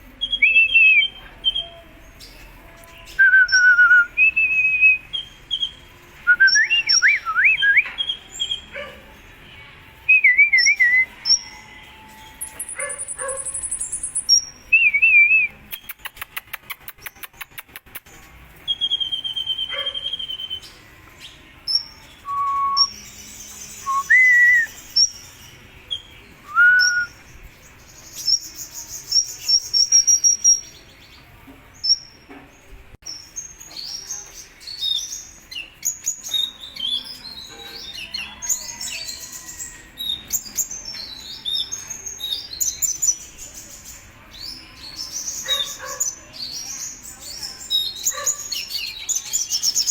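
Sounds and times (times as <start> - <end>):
bird singing: 0.0 - 16.3, 18.7 - 32.3, 33.0 - 49.9
bird dry clicking notes: 15.7 - 18.1.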